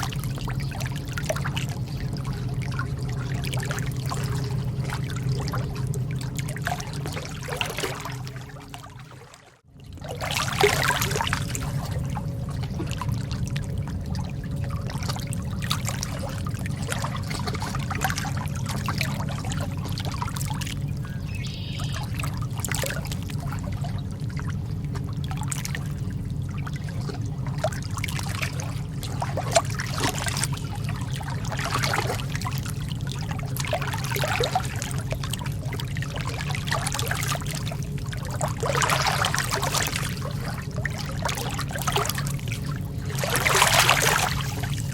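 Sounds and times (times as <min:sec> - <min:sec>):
lake water lapping: 0:00.0 - 0:44.9
steady low rumble: 0:00.0 - 0:44.9.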